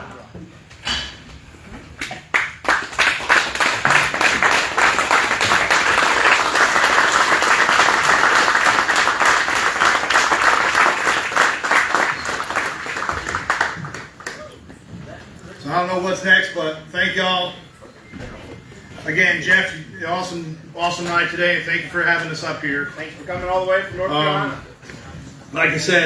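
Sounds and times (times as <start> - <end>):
crowd applauding: 2.0 - 14.6.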